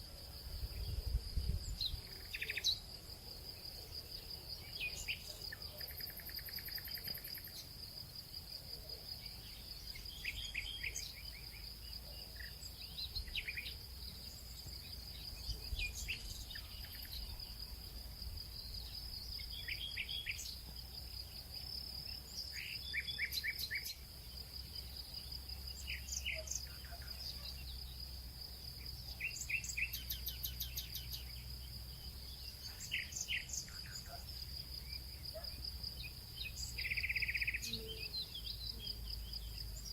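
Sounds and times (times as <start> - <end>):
insect trill: 0.0 - 39.9
bird chirps: 9.2 - 13.8, 35.3 - 39.9.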